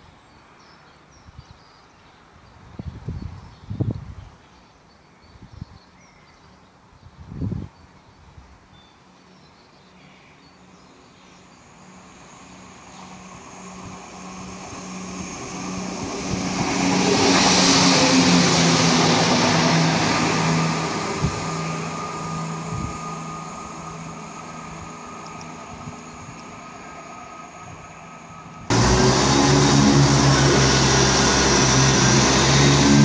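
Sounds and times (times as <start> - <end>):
train passing at speed: 10.6 - 33.0
train hum dropping in pitch: 11.5 - 33.0.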